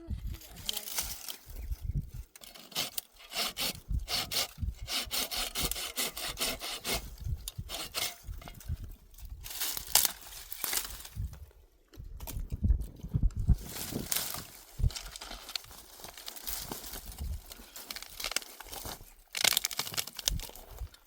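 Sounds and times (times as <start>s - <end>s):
hand saw cutting wood: 2.4s - 8.3s.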